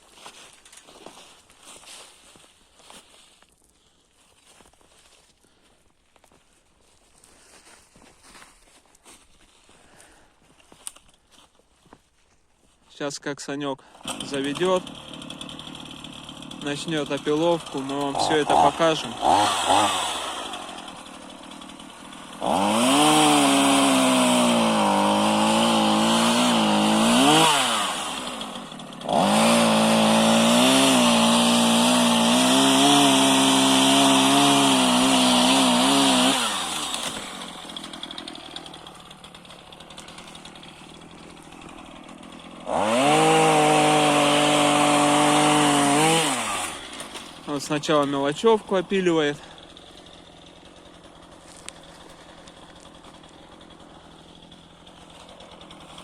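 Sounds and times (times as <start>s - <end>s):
chainsaw idling: 13.8s - 56.0s
chainsaw revving: 13.8s - 56.0s.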